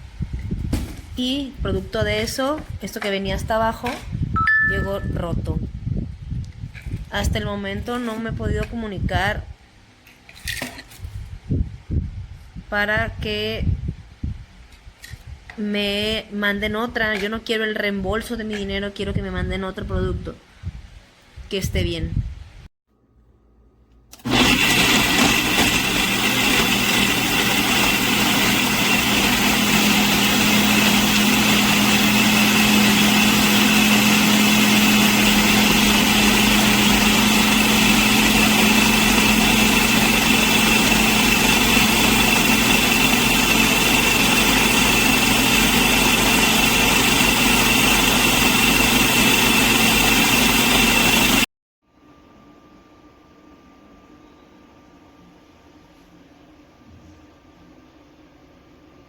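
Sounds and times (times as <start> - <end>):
blender motor running: 24.2 - 51.5.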